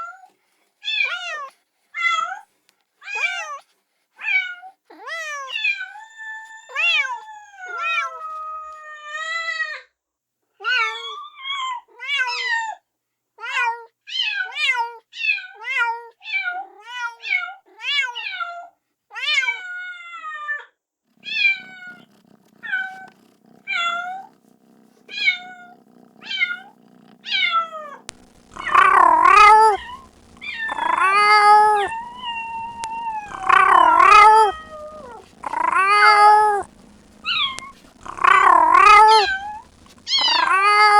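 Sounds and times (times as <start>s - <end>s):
faint steady hum: 21.2s - 40.9s
kitten meowing: 25.1s - 40.9s.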